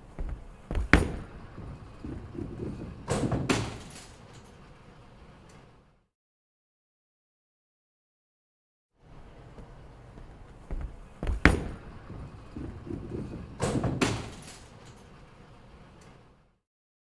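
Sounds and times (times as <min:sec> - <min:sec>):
sharp knocks: 0:00.1 - 0:03.9, 0:10.7 - 0:12.9.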